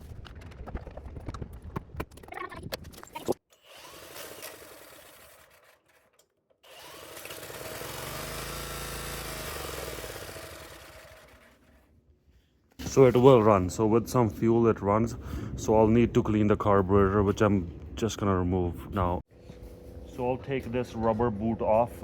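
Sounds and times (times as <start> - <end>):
small engine running: 3.5 - 11.9.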